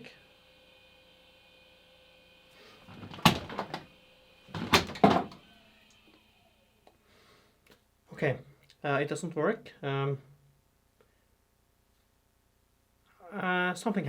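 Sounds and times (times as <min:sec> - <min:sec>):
rustling clunks with clicks: 0:02.9 - 0:03.9, 0:04.6 - 0:05.4.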